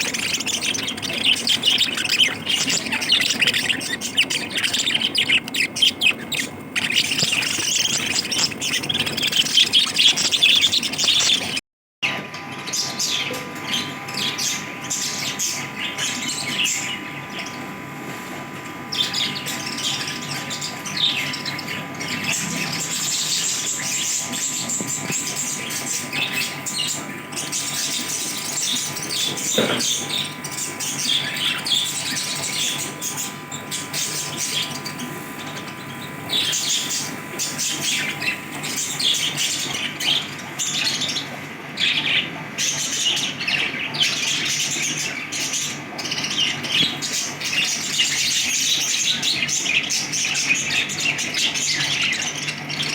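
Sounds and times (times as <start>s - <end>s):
lovebirds chirping: 0.0s - 11.6s, 18.9s - 52.9s.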